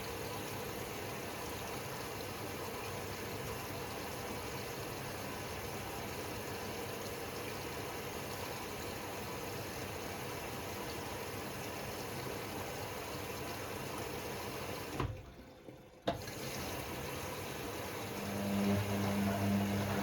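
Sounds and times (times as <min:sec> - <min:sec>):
washing machine running: 0:00.0 - 0:20.0.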